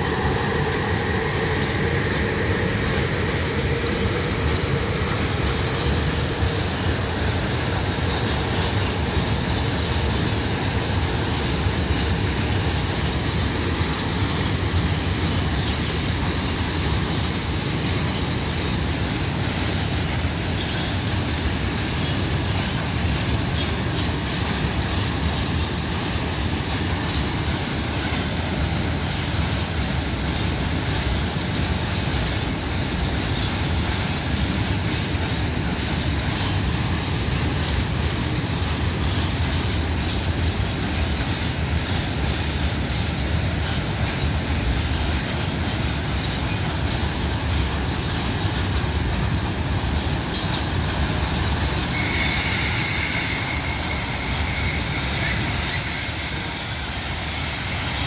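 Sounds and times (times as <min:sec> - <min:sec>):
steel wheels rumbling on rail: 0:00.0 - 0:58.0
high-pitched wheel squeal: 0:51.6 - 0:58.0.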